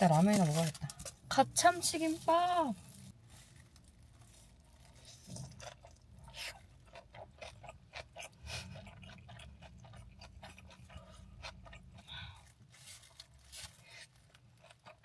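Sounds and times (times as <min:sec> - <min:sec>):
person chewing with crunches: 0:00.0 - 0:15.0.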